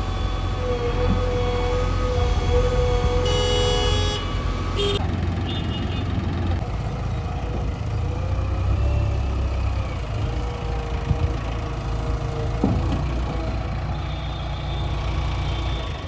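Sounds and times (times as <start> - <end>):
diesel engines rumbling: 0.0 - 16.0
vehicle horn: 1.5 - 6.1.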